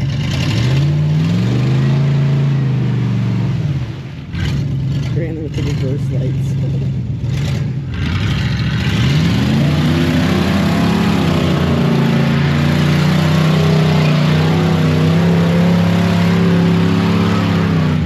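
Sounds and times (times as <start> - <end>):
truck engine revving under load: 0.0 - 18.0.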